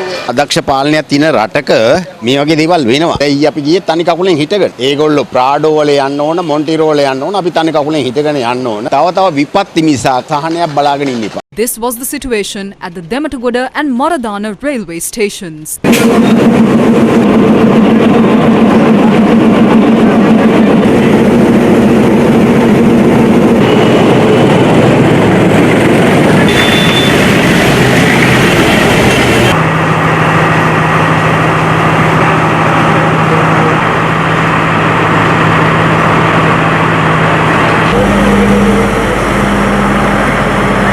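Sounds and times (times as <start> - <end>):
diesel train engine hum: 15.9 - 40.9.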